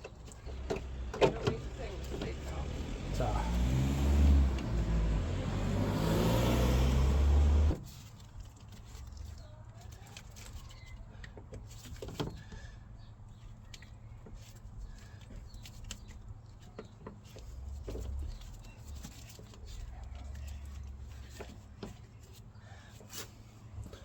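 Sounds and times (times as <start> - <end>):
loud low engine drone: 1.6 - 7.8.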